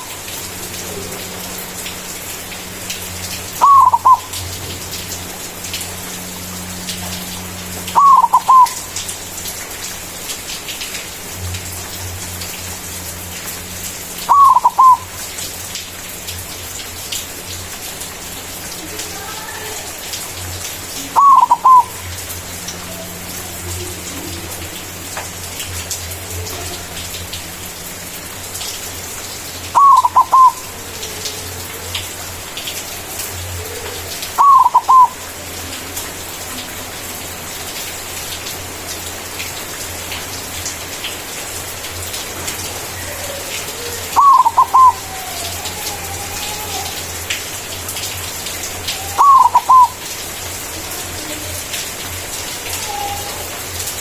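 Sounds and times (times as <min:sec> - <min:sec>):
dove cooing: 0:03.6 - 0:04.4, 0:07.9 - 0:08.9, 0:14.3 - 0:15.1, 0:20.9 - 0:22.0, 0:29.7 - 0:32.1, 0:33.4 - 0:35.6, 0:42.8 - 0:47.0, 0:48.9 - 0:50.0, 0:52.7 - 0:53.6.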